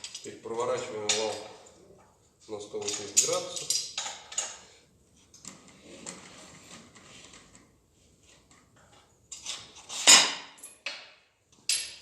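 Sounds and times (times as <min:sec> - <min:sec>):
scratchy clicking of metal parts: 0:00.0 - 0:01.5, 0:02.7 - 0:07.7.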